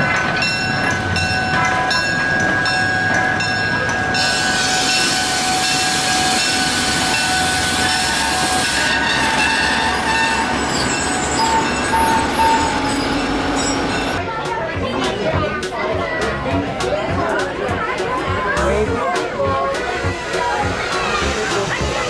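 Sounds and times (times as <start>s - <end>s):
high tones: 0.0s - 14.2s
train rolling on rails: 0.0s - 22.0s.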